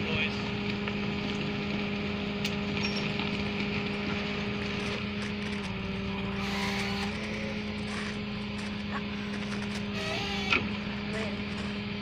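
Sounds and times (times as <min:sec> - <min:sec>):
tow truck engine whining: 0:00.0 - 0:12.0.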